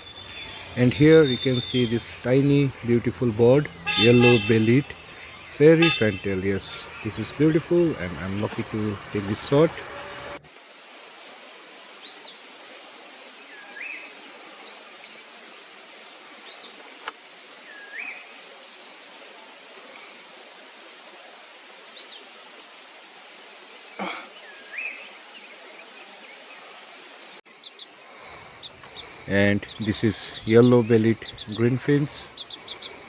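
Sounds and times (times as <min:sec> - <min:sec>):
bird calling: 0:00.0 - 0:10.4, 0:28.3 - 0:33.0
outdoor ambience hiss: 0:00.0 - 0:33.0.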